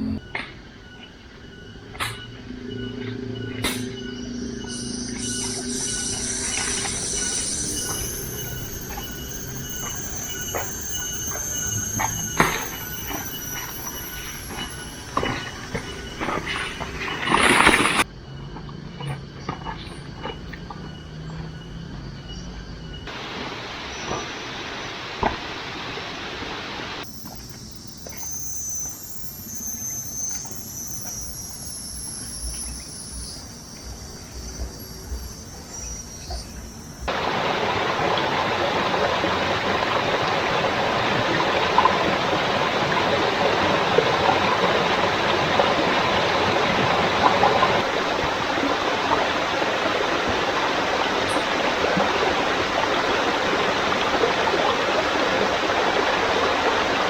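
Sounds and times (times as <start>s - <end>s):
faint high-pitched calls: 0.0s - 17.7s
stream water flowing: 1.8s - 18.1s, 23.1s - 57.0s.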